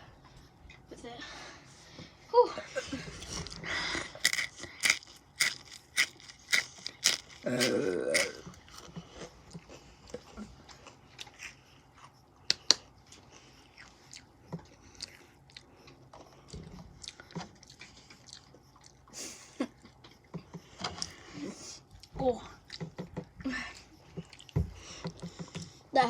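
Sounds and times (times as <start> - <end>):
person chewing crunchy chips: 3.2 - 9.4, 10.7 - 19.1.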